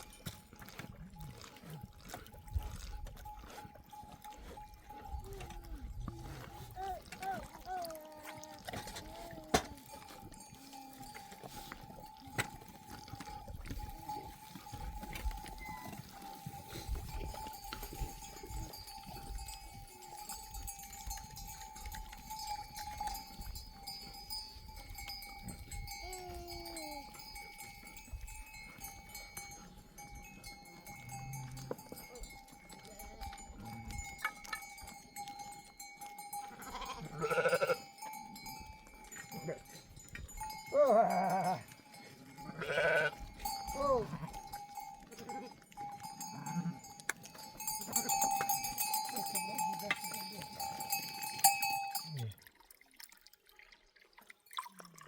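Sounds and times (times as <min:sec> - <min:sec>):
sheep bells clinking: 0:00.0 - 0:52.5
sheep bleating: 0:36.5 - 0:37.9, 0:40.7 - 0:41.6, 0:42.5 - 0:44.4.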